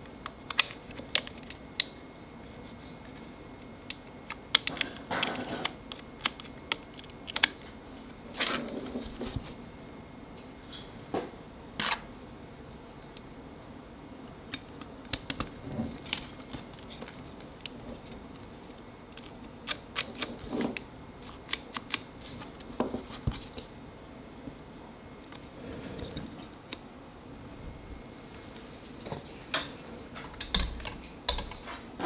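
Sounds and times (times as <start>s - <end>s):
faint steady hum: 0.0s - 32.0s
tools clicking and tapping: 3.9s - 7.6s, 29.6s - 31.9s.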